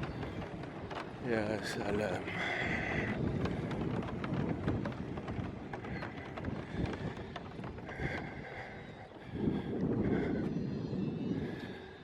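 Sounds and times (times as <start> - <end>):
small clicks and crackles: 0.0 - 10.3
wind buffeting microphone: 0.0 - 12.0.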